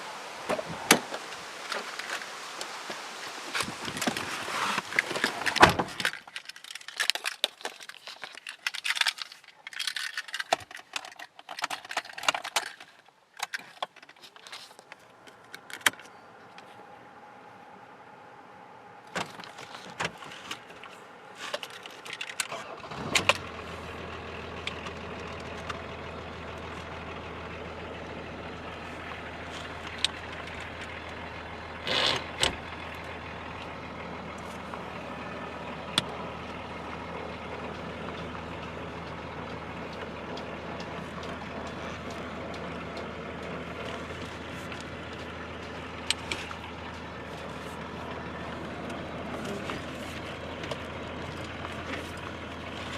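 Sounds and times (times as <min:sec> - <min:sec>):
diesel engine starting and idling: 0:15.1 - 0:52.9.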